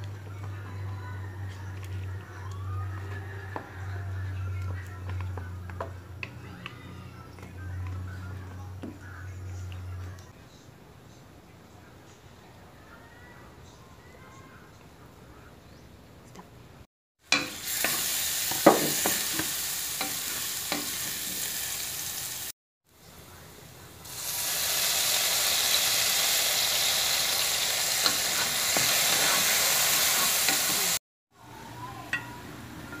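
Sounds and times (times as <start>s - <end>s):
garlic sizzling in hot oil: 17.3s - 22.5s, 24.0s - 31.0s
wooden spatula scraping pan: 28.1s - 30.8s.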